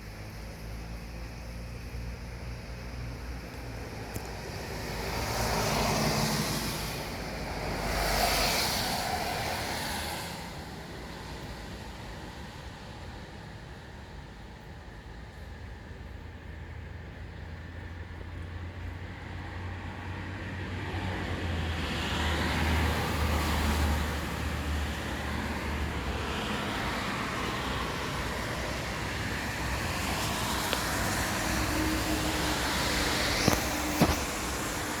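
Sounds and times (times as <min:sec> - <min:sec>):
steady traffic noise: 0:00.0 - 0:35.0
vehicle passing: 0:04.9 - 0:10.7.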